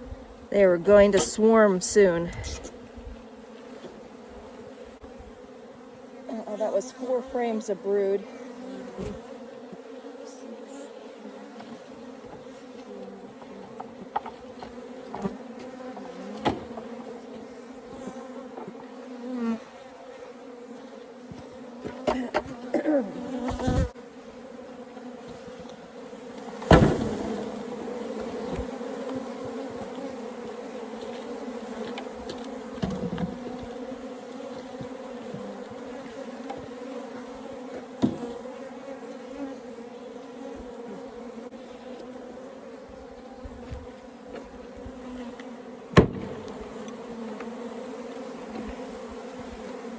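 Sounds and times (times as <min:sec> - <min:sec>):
bees buzzing: 0:00.0 - 0:49.9
single bees whining past: 0:00.0 - 0:49.9
knocks and thuds: 0:26.6 - 0:27.3, 0:45.9 - 0:46.6.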